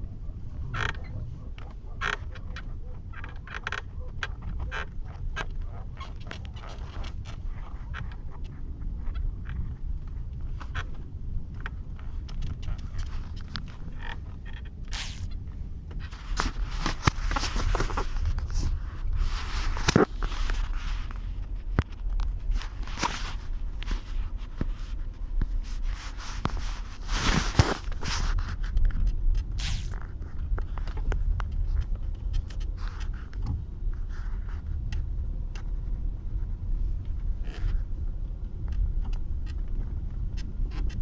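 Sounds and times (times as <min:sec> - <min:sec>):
road and engine rumble in cabin: 0:00.0 - 0:41.0
car seat creaking: 0:00.1 - 0:08.2, 0:12.3 - 0:28.7, 0:29.4 - 0:31.0.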